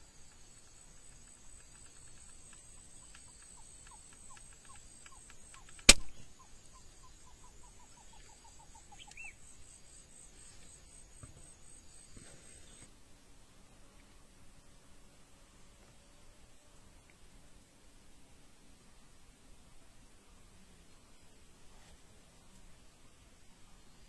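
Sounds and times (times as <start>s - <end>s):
sharp loud snap: 5.8s - 6.3s.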